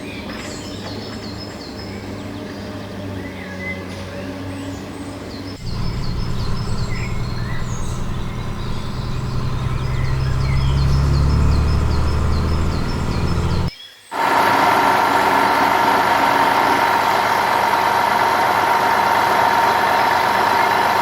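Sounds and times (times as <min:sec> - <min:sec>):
bird chirping: 0:04.6 - 0:14.1
low engine-like rumble: 0:05.6 - 0:13.7.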